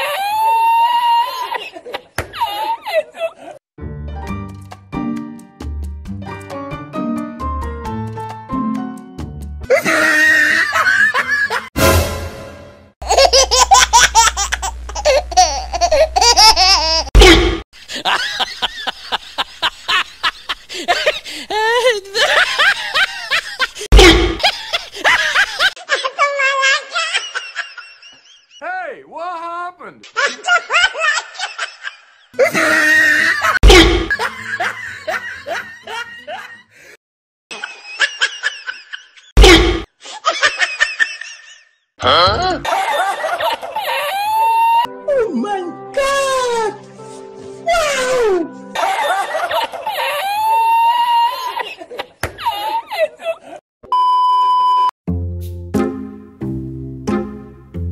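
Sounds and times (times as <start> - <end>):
high-pitched giggling laughter: 13.0 - 28.1
snickering laughter: 51.4 - 53.6.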